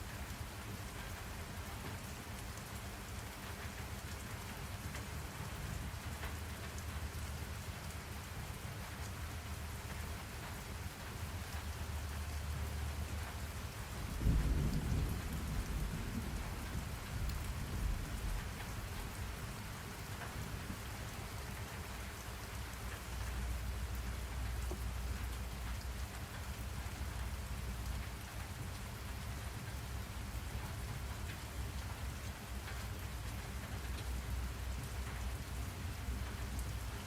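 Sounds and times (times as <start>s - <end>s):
steady rain falling: 0.0s - 37.0s
low roll of thunder: 13.8s - 19.6s.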